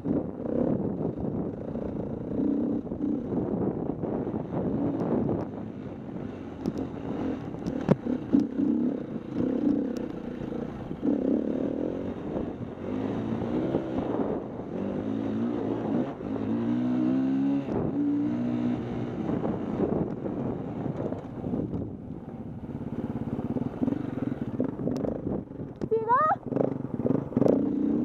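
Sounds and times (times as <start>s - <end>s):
dirt bike engine revving: 6.2s - 20.9s, 26.1s - 28.0s.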